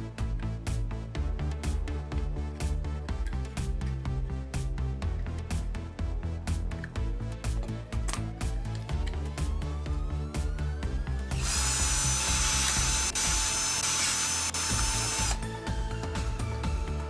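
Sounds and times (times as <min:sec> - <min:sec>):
background music: 0:00.0 - 0:17.0
cordless drill motor running: 0:11.3 - 0:15.5.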